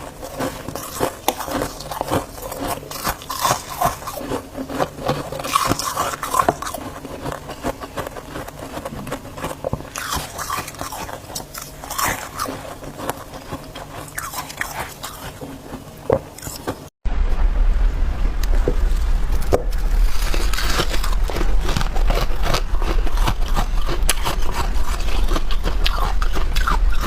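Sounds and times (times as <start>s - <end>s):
frost being chewed crunching: 0.0s - 16.9s, 19.4s - 27.0s.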